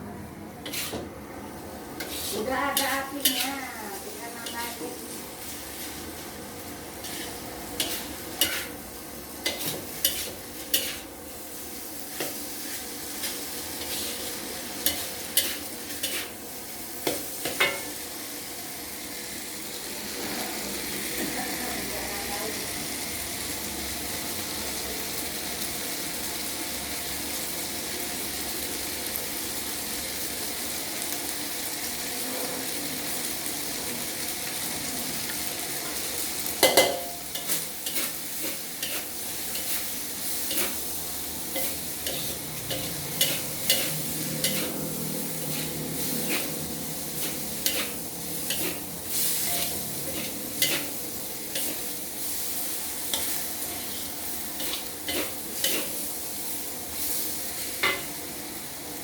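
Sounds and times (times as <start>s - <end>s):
metal spatula scraping a wok: 0.6s - 1.1s, 2.0s - 4.8s, 7.0s - 8.8s, 9.4s - 11.1s, 11.9s - 16.4s, 36.6s - 56.2s
rice sizzling in a wok: 0.6s - 59.0s.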